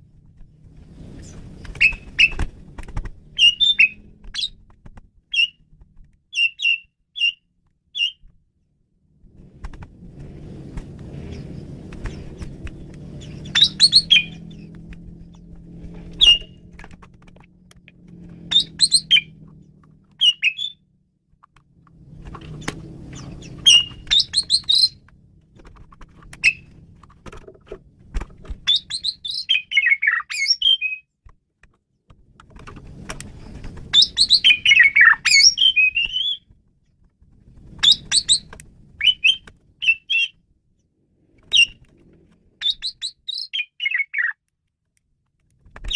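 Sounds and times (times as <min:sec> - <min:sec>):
starling singing: 0:03.4 - 0:04.6, 0:13.2 - 0:14.7, 0:16.2 - 0:16.6, 0:18.5 - 0:19.4, 0:20.2 - 0:20.8, 0:23.1 - 0:25.0, 0:26.4 - 0:26.7, 0:28.7 - 0:31.0, 0:33.9 - 0:36.4, 0:37.8 - 0:40.4, 0:42.6 - 0:44.4.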